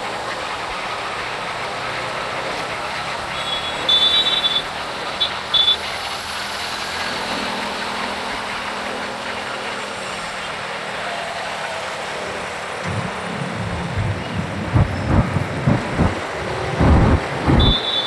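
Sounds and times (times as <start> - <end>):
motorcycle road and wind noise: 12.9 - 18.0.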